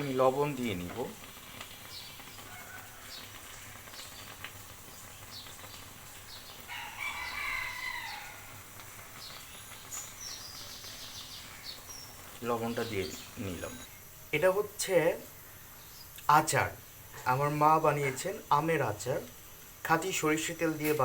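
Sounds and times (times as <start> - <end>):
rooster crowing: 2.4 - 3.8, 6.6 - 8.8.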